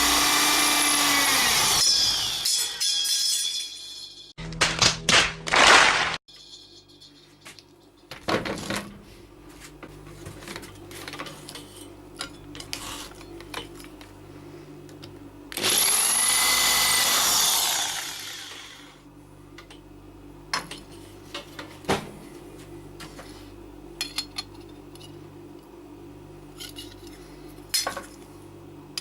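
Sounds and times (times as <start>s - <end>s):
handheld power tool running: 0.0s - 2.5s, 15.5s - 19.0s.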